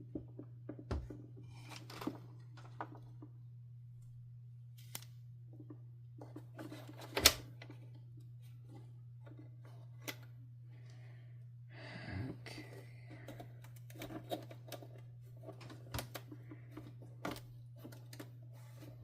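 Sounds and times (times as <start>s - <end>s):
steady low hum: 0.0s - 19.0s
plastic parts clicking and knocking: 13.1s - 18.9s.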